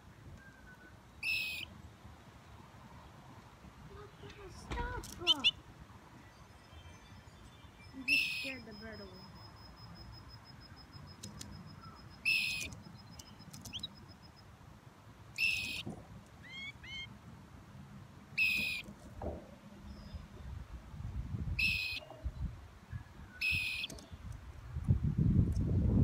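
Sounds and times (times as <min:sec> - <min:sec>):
rising bird chirps: 0:00.0 - 0:01.8, 0:06.2 - 0:14.5, 0:15.4 - 0:17.2, 0:18.4 - 0:18.9, 0:21.6 - 0:24.3
bird calling: 0:00.4 - 0:01.8, 0:03.9 - 0:14.4, 0:15.3 - 0:17.2, 0:18.4 - 0:18.9, 0:21.6 - 0:22.4, 0:23.0 - 0:24.2
high bird trill: 0:00.4 - 0:01.8, 0:04.8 - 0:14.5, 0:15.3 - 0:17.2, 0:18.4 - 0:18.9, 0:21.6 - 0:22.4, 0:23.0 - 0:24.2.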